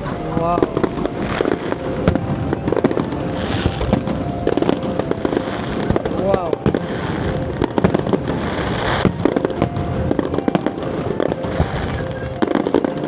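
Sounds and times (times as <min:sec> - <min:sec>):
fireworks bangs and crackles: 0:00.0 - 0:13.0
fireworks hiss: 0:00.0 - 0:13.0.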